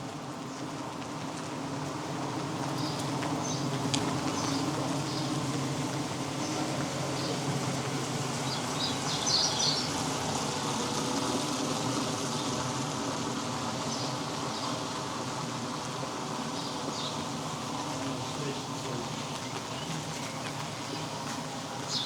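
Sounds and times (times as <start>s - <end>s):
rain: 0.0s - 22.0s.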